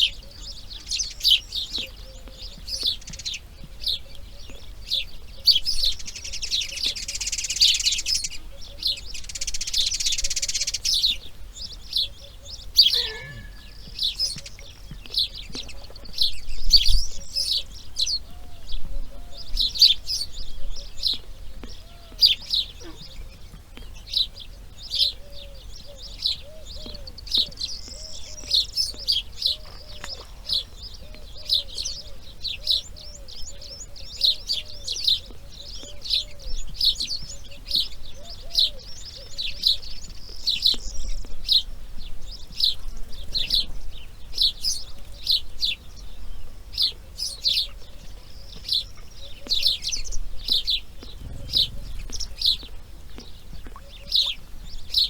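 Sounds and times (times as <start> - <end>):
lower arched bird calls: 4.9 - 15.8, 46.8 - 55.0
bird high chirps: 12.0 - 17.6, 49.2 - 54.4.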